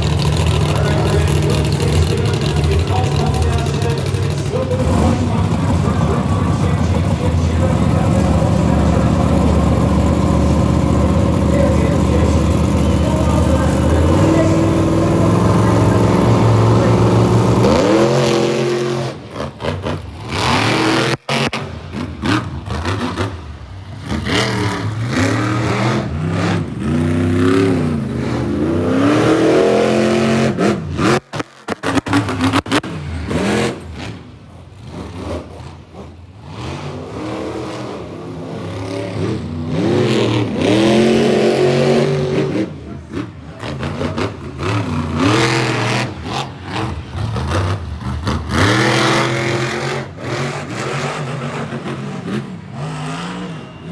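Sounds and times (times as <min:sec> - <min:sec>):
monster truck engine revving: 0:00.0 - 0:53.9.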